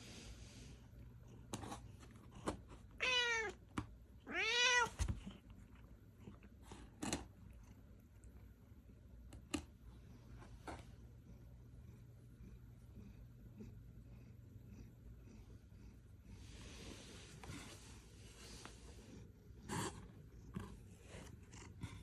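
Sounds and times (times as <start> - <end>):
cat meowing: 3.0 - 3.6, 4.3 - 5.0.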